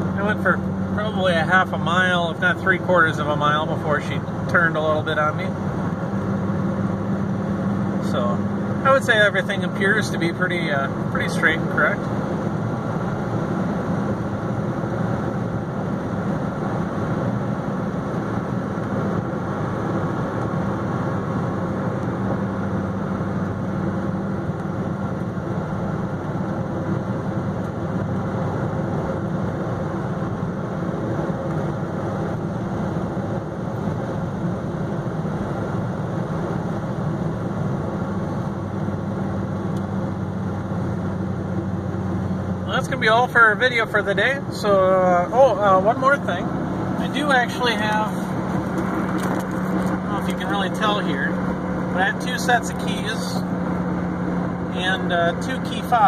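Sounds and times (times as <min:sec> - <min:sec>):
car engine drone in cabin: 0:00.0 - 0:56.0.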